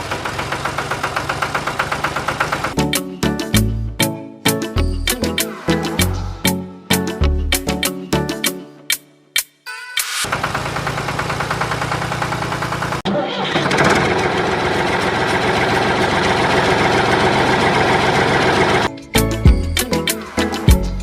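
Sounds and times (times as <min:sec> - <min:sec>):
motor knocking: 0:00.0 - 0:02.8, 0:10.3 - 0:13.0.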